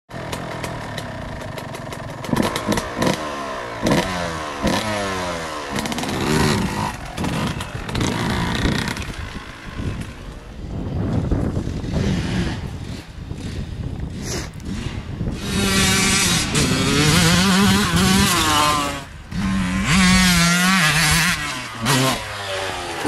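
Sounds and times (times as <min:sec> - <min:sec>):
dirt bike engines revving: 0:00.1 - 0:23.0.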